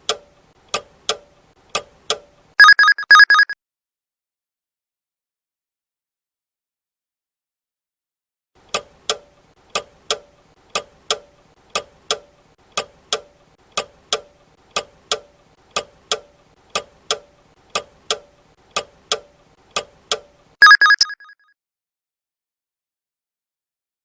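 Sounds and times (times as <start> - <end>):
timer ticking: 1.8 - 3.5, 20.1 - 21.3
loud alarm ring: 2.6 - 3.5, 20.6 - 21.3.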